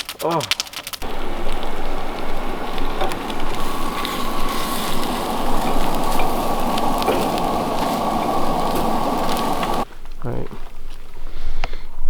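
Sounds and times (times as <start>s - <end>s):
campfire crackles: 0.0s - 9.9s
food sizzling in hot grease: 0.6s - 9.8s
faint steady tone: 1.0s - 9.8s.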